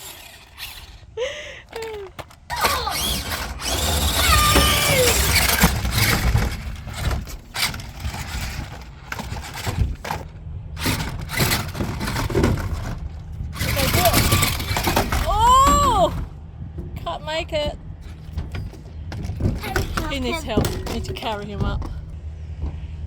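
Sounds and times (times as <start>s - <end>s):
toy truck motor running: 0.0s - 16.3s, 19.4s - 21.4s
knocks and clatter: 1.7s - 23.0s.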